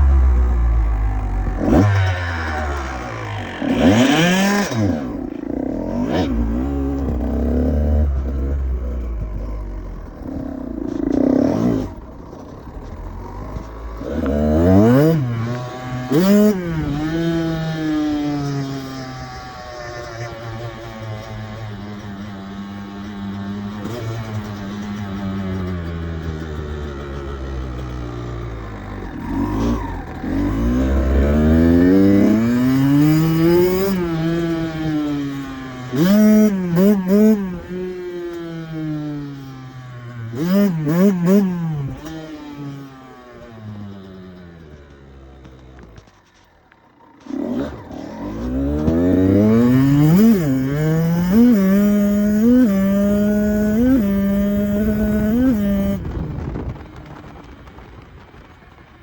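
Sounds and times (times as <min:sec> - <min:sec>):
vehicle engine accelerating: 0:00.0 - 0:59.0.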